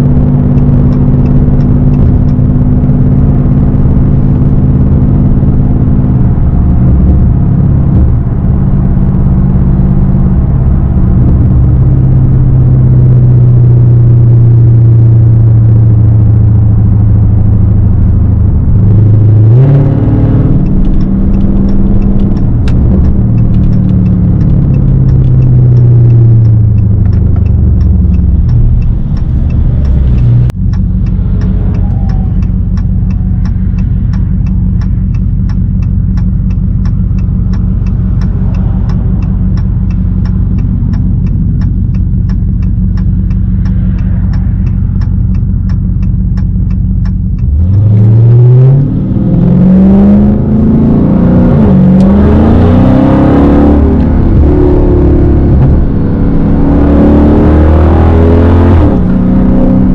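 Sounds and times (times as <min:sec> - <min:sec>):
car engine revving: 0:00.0 - 0:59.9
fast even ticking: 0:18.6 - 0:49.9.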